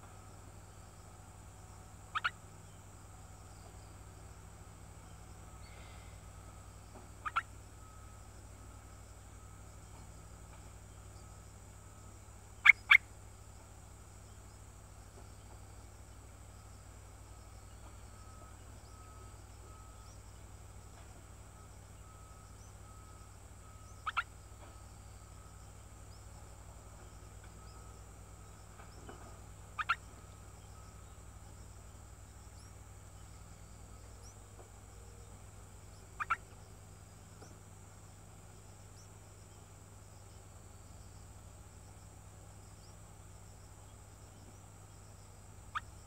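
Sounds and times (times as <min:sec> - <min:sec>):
faint outdoor drone: 0:00.0 - 0:46.0
bird double call: 0:02.1 - 0:02.4, 0:07.2 - 0:07.5, 0:24.0 - 0:24.3, 0:29.8 - 0:30.0, 0:36.2 - 0:36.4.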